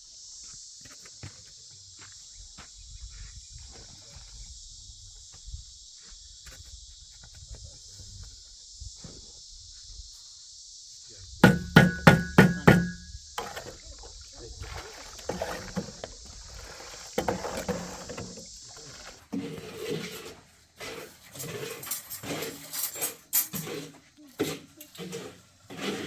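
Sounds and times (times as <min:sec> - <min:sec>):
sharp knocks with ringing tone: 0:11.4 - 0:13.1
knocking and clatter: 0:11.4 - 0:13.5.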